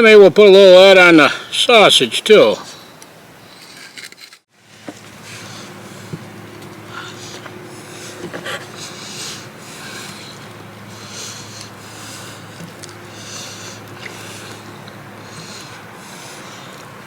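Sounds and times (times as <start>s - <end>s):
steady low hum: 4.6s - 17.0s
person breathing through nose: 6.9s - 17.0s.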